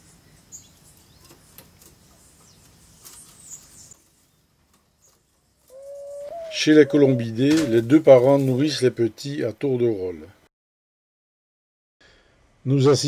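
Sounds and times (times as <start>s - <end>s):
faint high bird chirps: 5.0s - 7.9s.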